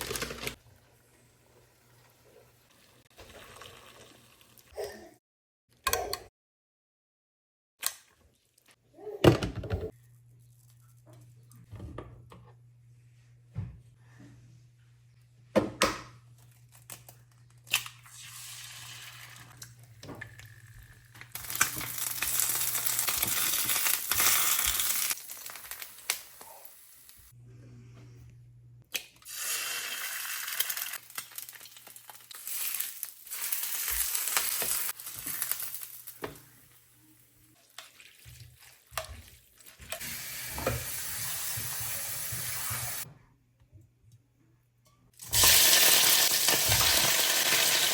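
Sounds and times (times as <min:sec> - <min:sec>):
cooking hiss: 0:40.0 - 0:43.0, 0:45.2 - 0:47.9.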